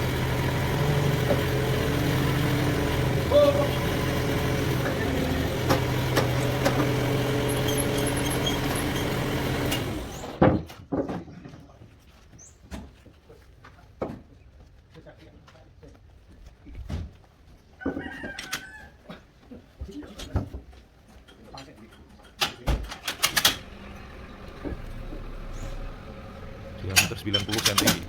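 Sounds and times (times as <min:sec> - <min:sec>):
bandsaw machinery humming: 0:00.0 - 0:10.4, 0:23.4 - 0:28.0.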